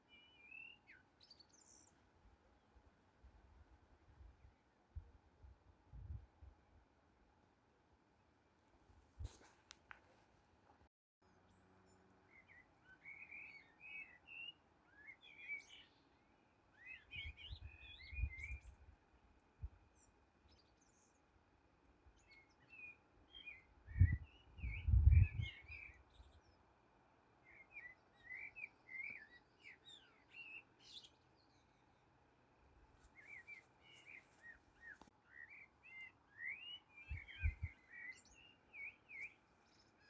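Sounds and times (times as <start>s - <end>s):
songbird chirping and twittering: 0.0s - 3.1s, 11.2s - 40.0s.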